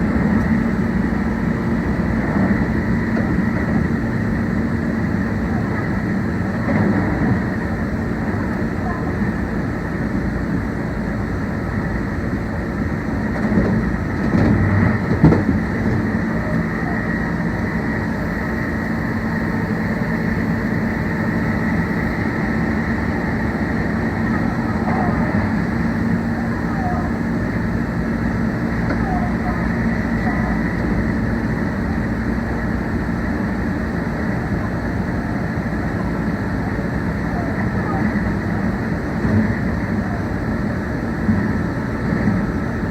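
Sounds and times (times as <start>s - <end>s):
electric train rumbling: 0.0s - 42.9s
faint whine: 0.0s - 42.9s.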